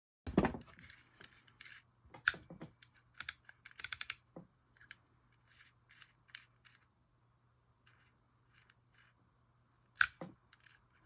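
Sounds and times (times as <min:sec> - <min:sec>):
small metal parts clicking: 0:00.8 - 0:04.2, 0:09.9 - 0:11.0.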